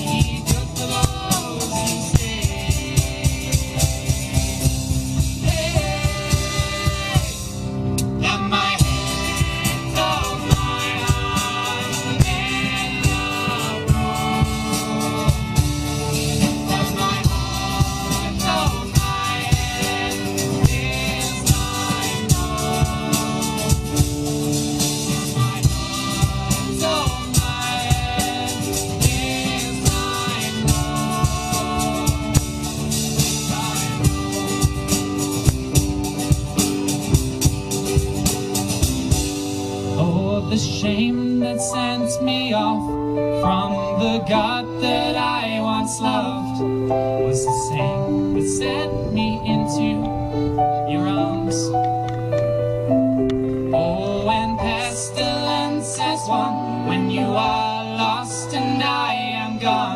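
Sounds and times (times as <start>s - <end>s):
drums: 0.0s - 42.7s
people singing: 0.0s - 51.9s, 53.7s - 59.9s
guitar: 0.0s - 59.9s.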